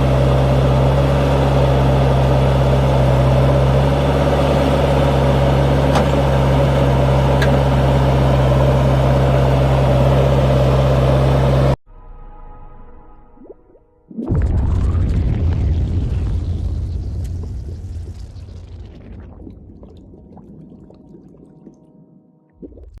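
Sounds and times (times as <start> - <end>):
tractor diesel engine running: 0.0 - 11.8.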